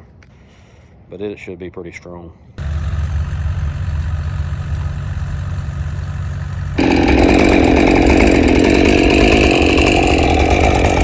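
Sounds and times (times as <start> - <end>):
low engine idling: 2.6 - 11.0
chainsaw running: 6.6 - 11.0.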